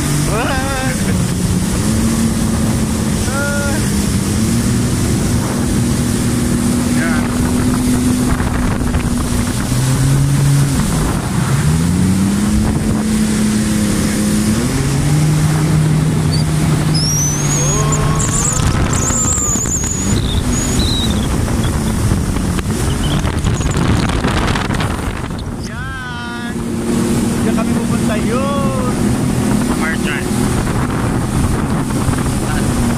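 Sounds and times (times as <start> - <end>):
jet ski engine running: 0.0 - 32.9
water noise: 0.0 - 32.9
wind buffeting microphone: 0.0 - 32.9
high squeals: 16.2 - 22.0, 22.8 - 24.1.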